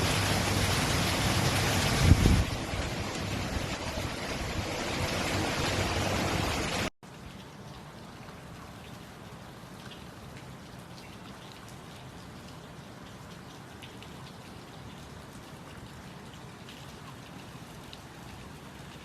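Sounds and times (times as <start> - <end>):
rain falling: 0.0 - 19.0
raindrops ticking: 6.8 - 19.0.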